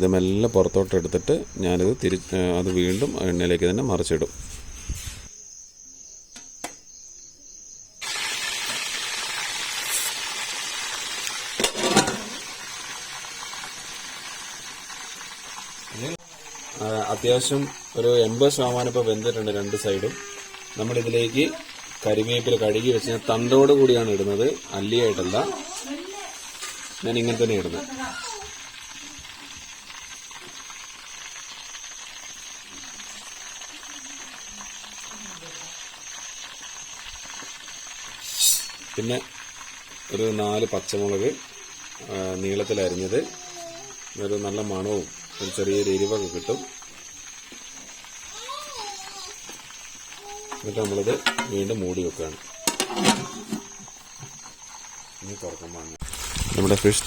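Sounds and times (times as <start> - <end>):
fish sizzling in hot oil: 8.0 - 57.0
utensil clattering: 11.6 - 12.5, 50.5 - 51.7, 52.7 - 53.8.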